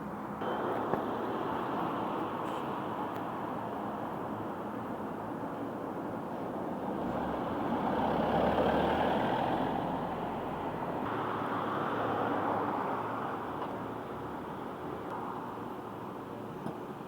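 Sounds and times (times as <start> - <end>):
bus road and body noise: 0.0 - 17.0.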